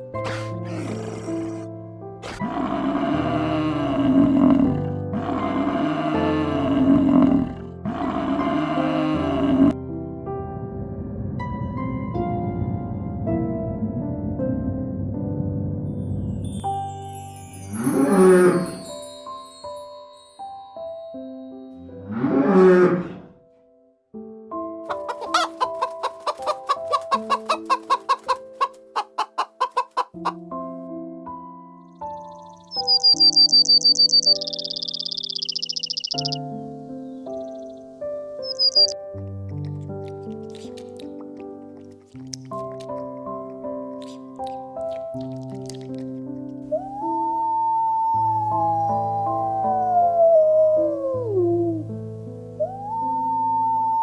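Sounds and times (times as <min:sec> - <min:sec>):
background music: 0:00.0 - 0:54.0
big cat roaring: 0:00.2 - 0:09.8, 0:22.0 - 0:23.4
light chime-like tune: 0:16.0 - 0:21.8
chicken calling: 0:24.9 - 0:30.4, 0:32.7 - 0:36.4.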